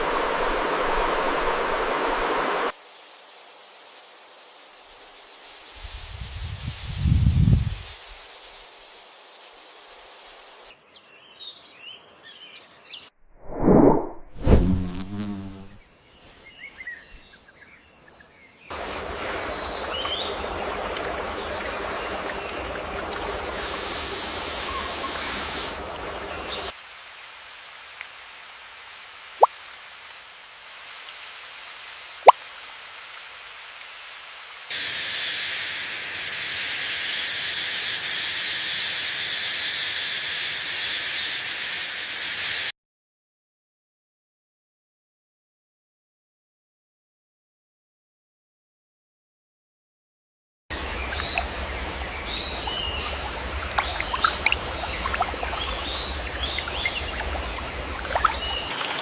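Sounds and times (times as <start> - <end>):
rain hiss: 0.0 - 10.7, 18.7 - 42.7, 50.7 - 59.0
insects buzzing: 14.4 - 17.6, 18.7 - 26.8, 32.7 - 42.7, 50.7 - 59.0.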